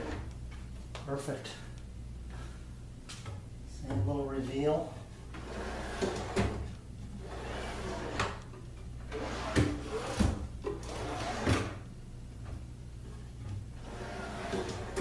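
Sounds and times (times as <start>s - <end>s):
wooden drawers sliding: 5.4s - 8.4s, 9.1s - 11.8s, 13.8s - 15.0s.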